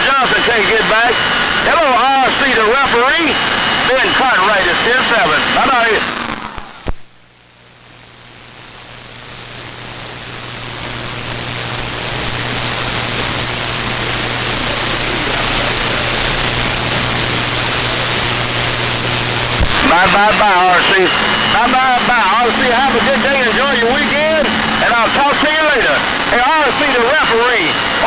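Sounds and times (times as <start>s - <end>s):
radio static hiss: 0.0s - 28.0s
low hum: 10.3s - 28.0s.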